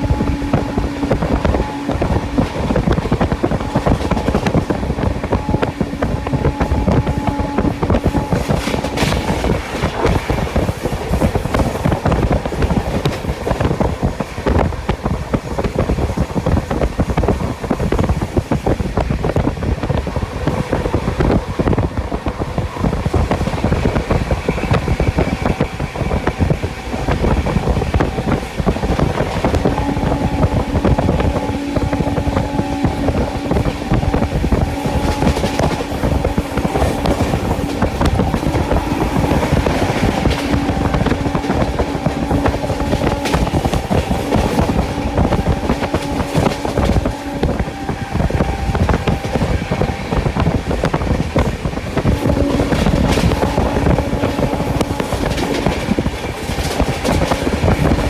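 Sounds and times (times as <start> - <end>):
train rumble: 0.0 - 58.0.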